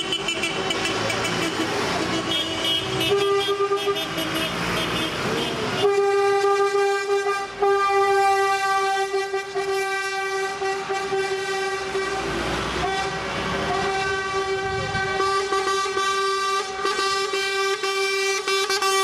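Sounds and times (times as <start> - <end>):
truck air horn blasts: 0.0 - 19.0.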